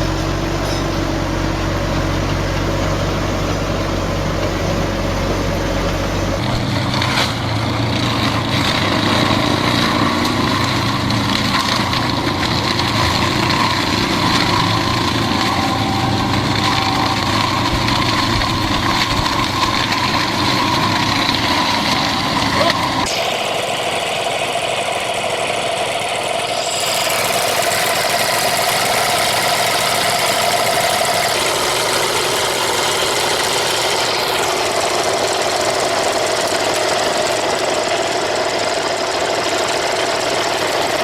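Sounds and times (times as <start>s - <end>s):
farm machinery engines running: 0.0s - 41.0s
high mechanical whine: 0.0s - 41.0s.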